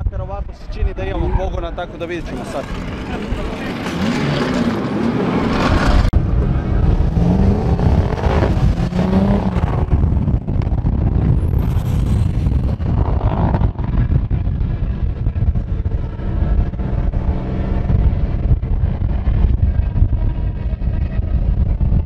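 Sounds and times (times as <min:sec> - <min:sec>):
turbocharged car engine running: 0:05.6 - 0:22.0.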